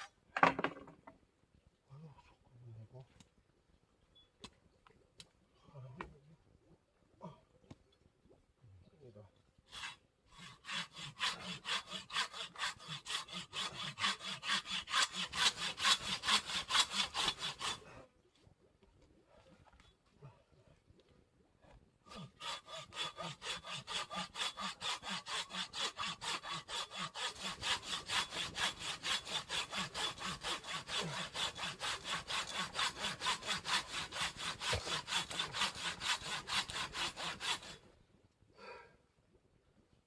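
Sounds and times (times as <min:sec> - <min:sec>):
hand saw cutting: 0:09.7 - 0:17.9, 0:22.1 - 0:37.8.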